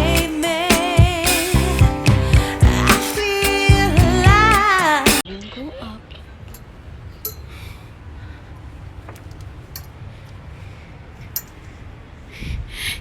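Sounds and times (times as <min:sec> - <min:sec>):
steady low rumble: 0:01.0 - 0:02.9, 0:03.7 - 0:04.7.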